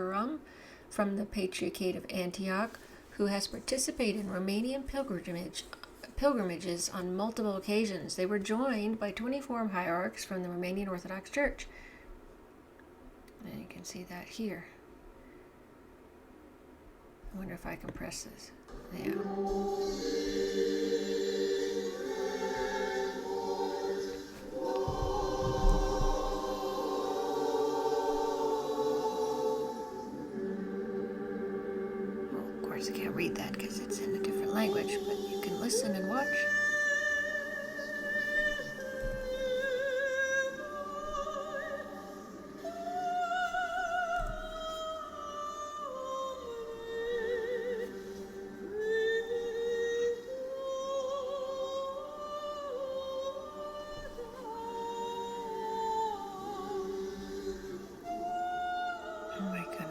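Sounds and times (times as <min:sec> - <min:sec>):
choir chanting held chords: 0:18.7 - 0:59.9.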